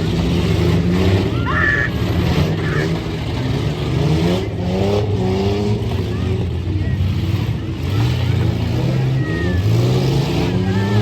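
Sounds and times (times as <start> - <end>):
truck engines revving: 0.0 - 11.0.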